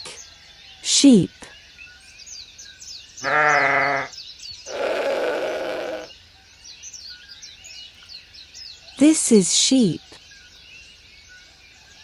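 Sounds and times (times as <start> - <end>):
faint birdsong: 0.0 - 12.0
sheep bleating: 3.2 - 4.1, 4.7 - 6.1.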